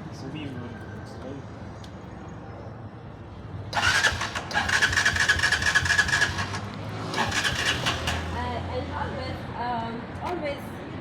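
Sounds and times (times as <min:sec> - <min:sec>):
motorcycle starting: 0:03.7 - 0:08.6
motorcycle engine humming: 0:03.7 - 0:08.7.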